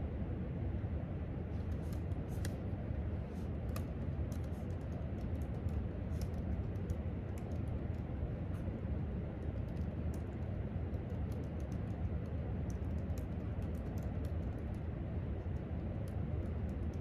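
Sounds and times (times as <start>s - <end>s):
room ventilation rumble: 0.0s - 17.0s
typing on laptop keyboard: 3.7s - 8.2s, 9.3s - 17.0s.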